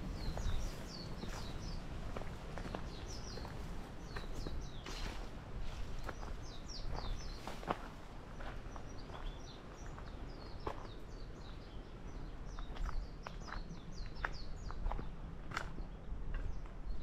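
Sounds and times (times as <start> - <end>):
crunching footsteps: 0.0 - 11.0
small birds chirping: 0.0 - 17.0.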